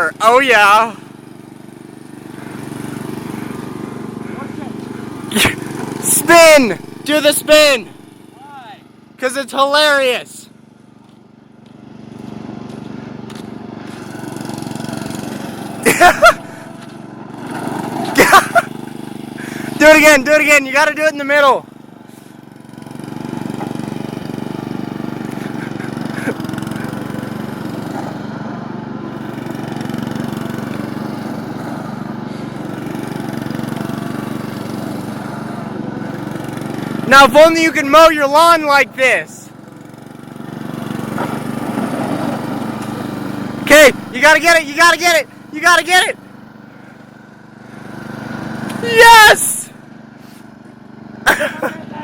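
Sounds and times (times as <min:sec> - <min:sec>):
lawn mower engine running: 0:00.0 - 0:52.0
person shouting: 0:04.2 - 0:10.4, 0:15.8 - 0:16.7, 0:37.1 - 0:39.4, 0:43.7 - 0:46.2, 0:48.8 - 0:49.8, 0:51.3 - 0:52.0.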